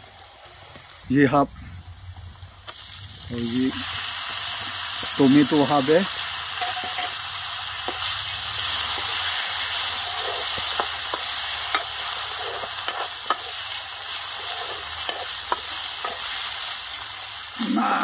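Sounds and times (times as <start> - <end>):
vegetables sizzling in oil: 0.0 - 18.0
metal ladle scraping wok: 2.7 - 16.7.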